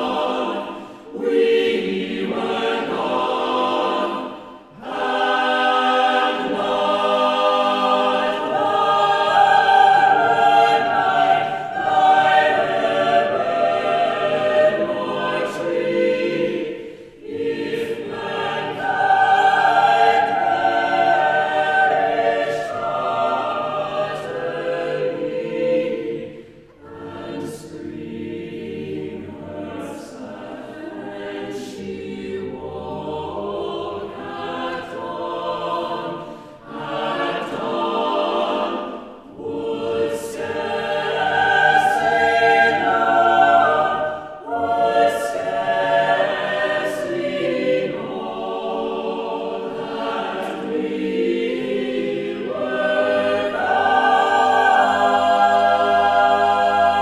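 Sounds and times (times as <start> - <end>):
choir singing a cappella: 0.0 - 57.0
singers breathing: 0.7 - 1.2, 16.8 - 17.2, 36.2 - 36.7.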